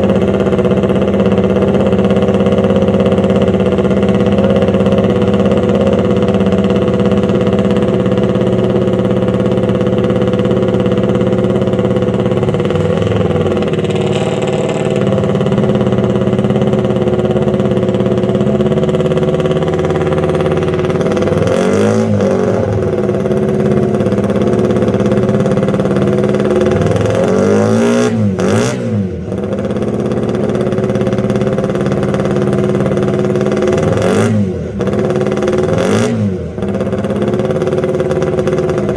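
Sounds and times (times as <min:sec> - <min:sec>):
racing engine revving: 0:10.4 - 0:38.9.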